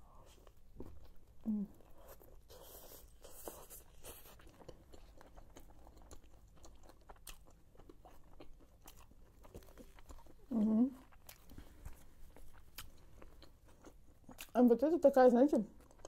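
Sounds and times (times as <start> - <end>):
person chewing: 0.1 - 14.6, 15.8 - 16.0.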